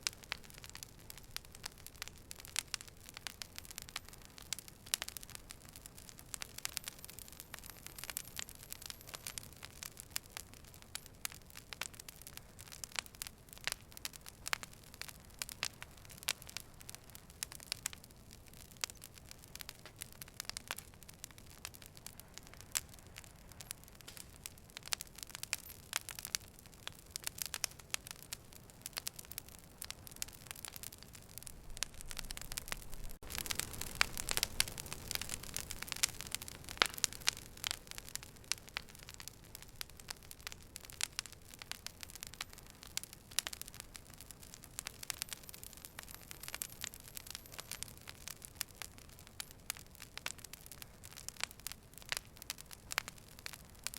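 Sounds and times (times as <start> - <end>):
fire crackling and popping: 0.0 - 53.9.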